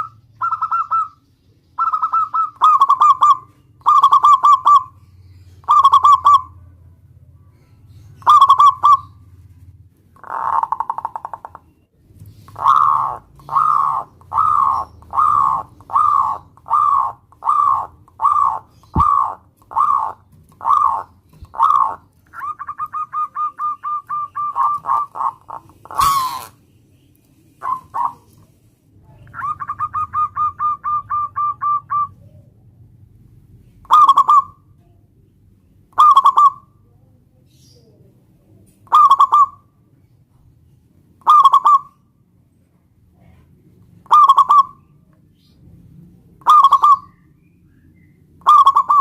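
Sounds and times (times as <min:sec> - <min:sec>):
dove cooing: 0:00.0 - 0:01.2, 0:01.8 - 0:05.0, 0:05.6 - 0:06.6, 0:08.2 - 0:09.3, 0:10.2 - 0:11.7, 0:12.3 - 0:26.6, 0:27.6 - 0:28.5, 0:29.1 - 0:32.6, 0:33.8 - 0:34.6, 0:35.9 - 0:36.7, 0:38.9 - 0:39.6, 0:41.2 - 0:41.9, 0:44.0 - 0:44.9, 0:46.4 - 0:47.2, 0:48.4 - 0:49.0.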